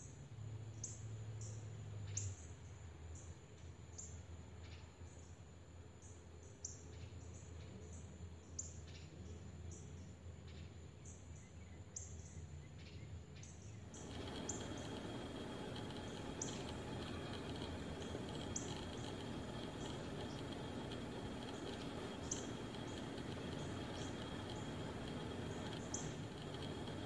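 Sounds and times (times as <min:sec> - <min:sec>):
small birds chirping: 0:14.0 - 0:27.0
steady hiss: 0:14.0 - 0:27.0.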